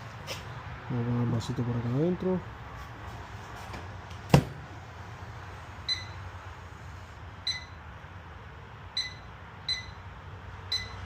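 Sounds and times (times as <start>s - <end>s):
short high beeps: 7.5s - 7.8s, 9.0s - 10.0s.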